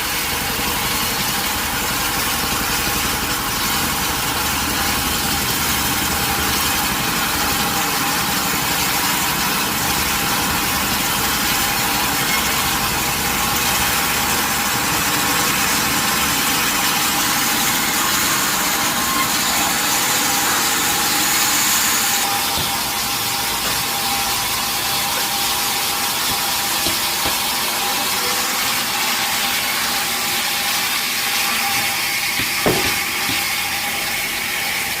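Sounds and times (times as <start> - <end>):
sawmill machinery whining: 0.0 - 35.0
sharp knock: 32.4 - 33.5.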